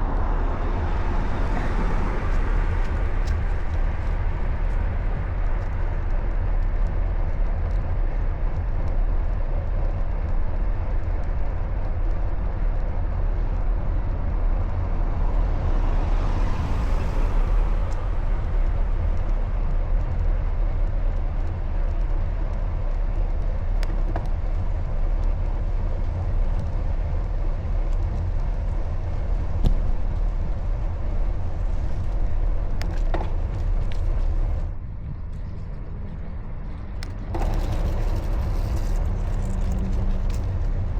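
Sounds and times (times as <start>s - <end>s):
vehicle passing: 0.0s - 5.6s, 14.6s - 20.3s
heavy low rumble: 0.0s - 40.9s
road and traffic noise: 0.0s - 40.9s.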